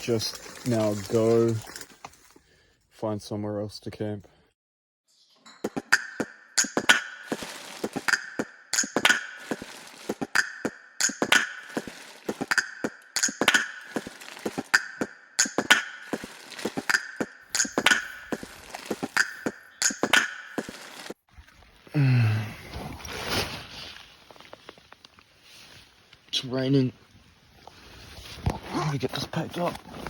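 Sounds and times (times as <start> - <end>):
footsteps crunching on dry ground: 7.2 - 8.1, 9.3 - 10.3, 11.2 - 21.2.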